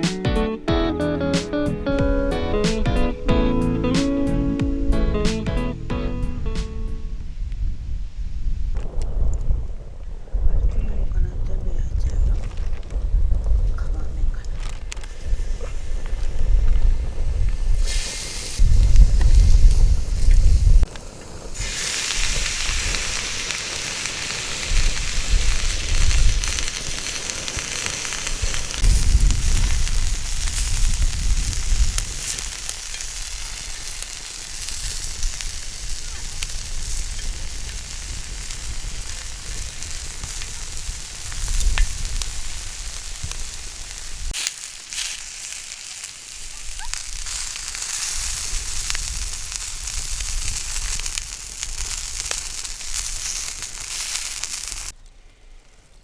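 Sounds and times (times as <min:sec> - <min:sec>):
small crackles and pops: 0:08.7 - 0:09.9, 0:11.4 - 0:56.0
food sizzling in a pan: 0:15.2 - 0:55.0.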